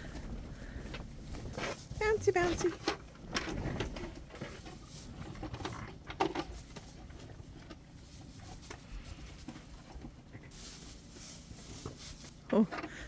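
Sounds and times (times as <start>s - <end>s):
rustling on straw: 0.0s - 13.0s.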